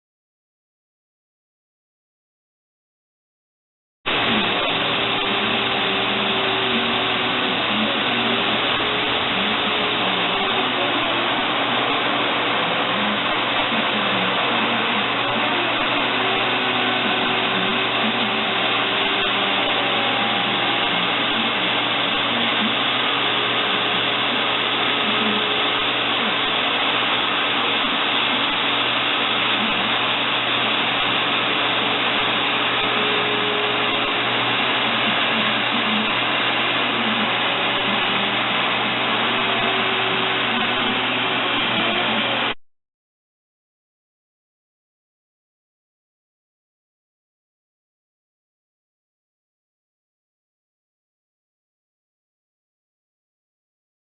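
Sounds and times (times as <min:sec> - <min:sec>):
blower whooshing: 0:04.1 - 0:42.6.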